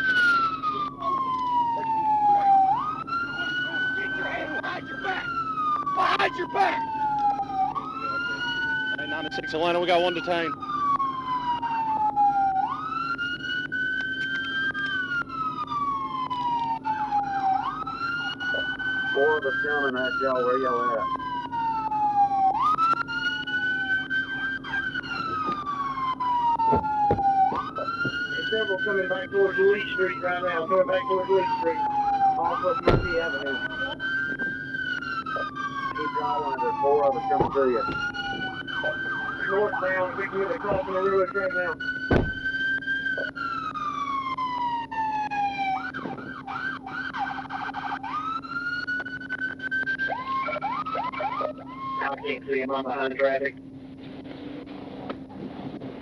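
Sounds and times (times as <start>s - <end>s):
faint distant sirens: 0.0s - 56.0s
police siren wailing: 0.0s - 56.0s
steady low hum: 50.3s - 56.0s.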